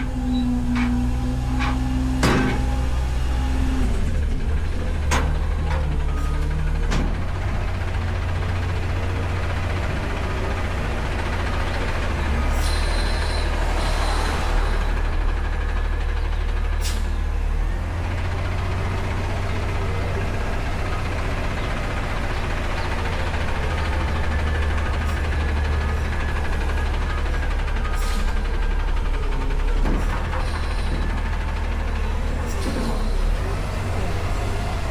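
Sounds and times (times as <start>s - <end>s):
truck diesel engine humming: 0.0s - 34.9s.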